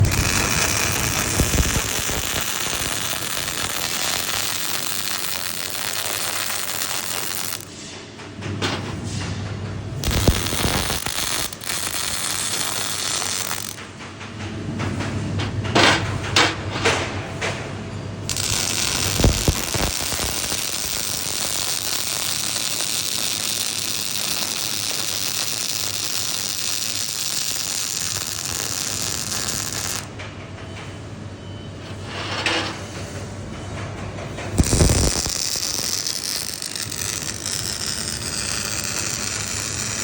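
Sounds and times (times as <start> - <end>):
welding arc crackling: 0.0 - 7.7, 10.0 - 13.8, 18.2 - 30.1, 34.5 - 40.0.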